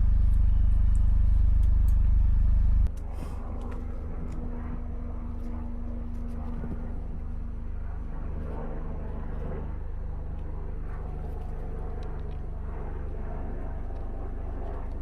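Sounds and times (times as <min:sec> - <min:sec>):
motorcycle engine running: 0:00.0 - 0:02.9.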